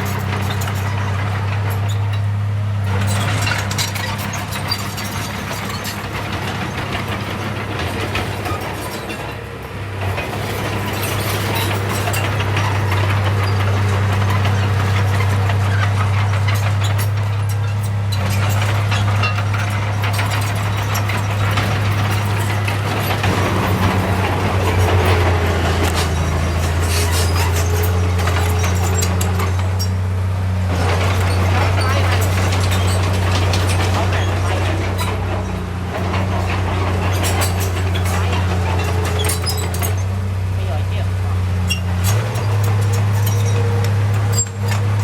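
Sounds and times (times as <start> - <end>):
heavy diesel machine engine: 0.0 - 45.0
metallic clanking and rattling: 0.0 - 45.0.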